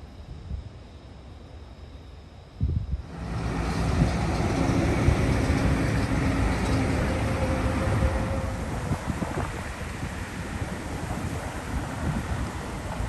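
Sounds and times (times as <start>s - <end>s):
motor vehicle passing: 3.1s - 13.0s.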